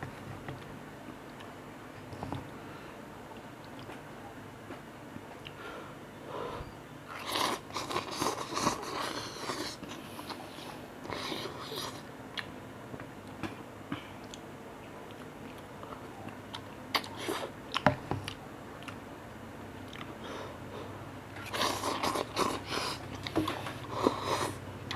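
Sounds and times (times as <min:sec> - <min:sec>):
person chewing noodles: 0:07.1 - 0:12.5, 0:19.8 - 0:20.3, 0:21.4 - 0:24.9.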